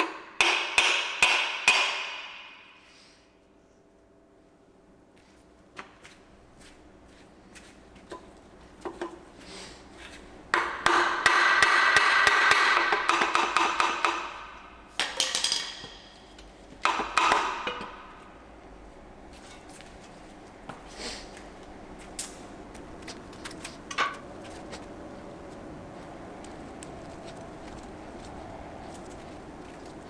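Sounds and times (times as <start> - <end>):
metal tools clattering: 15.0 - 16.6.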